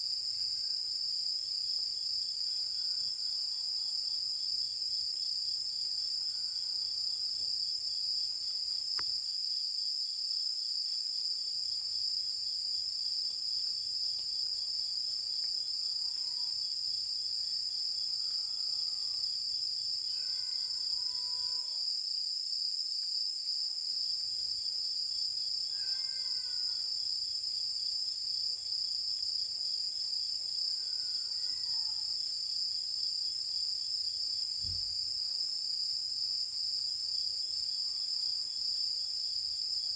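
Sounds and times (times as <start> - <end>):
night insects singing: 11.6 - 21.9, 24.4 - 39.9.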